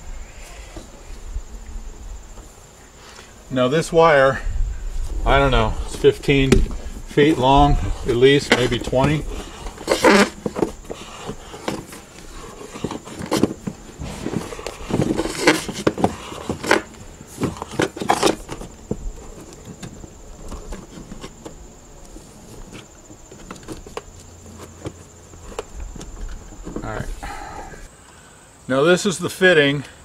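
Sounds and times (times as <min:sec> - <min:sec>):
power cord scraping against metal: 0:05.1 - 0:18.6.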